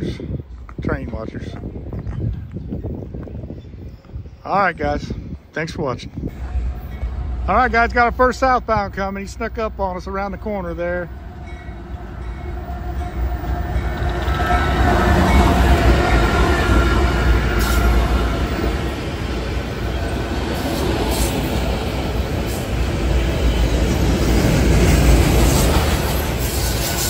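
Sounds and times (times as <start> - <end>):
train wheels rumbling on rail: 0.0 - 27.0
diesel locomotive passing: 1.4 - 27.0.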